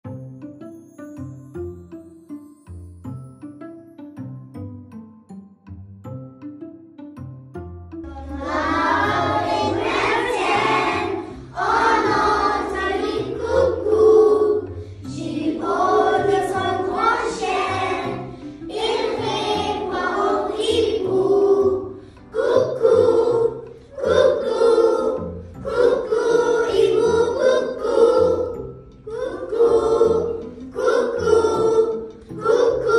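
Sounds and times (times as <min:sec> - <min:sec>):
low musical accompaniment: 0:00.0 - 0:32.9
children singing together: 0:08.1 - 0:32.9.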